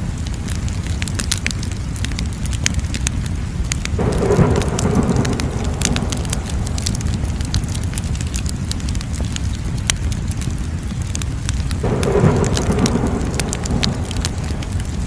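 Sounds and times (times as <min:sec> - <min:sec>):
fire crackling and popping: 0:00.0 - 0:15.0
rushing surge of flames: 0:03.8 - 0:15.0.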